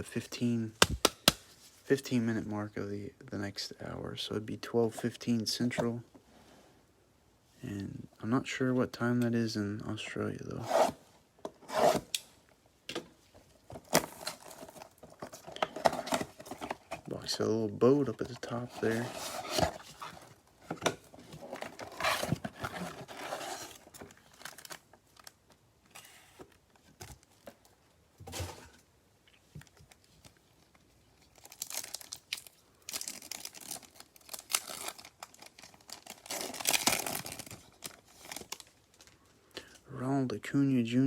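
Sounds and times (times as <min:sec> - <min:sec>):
foil wrapper tearing and crinkling: 0:31.4 - 0:38.7.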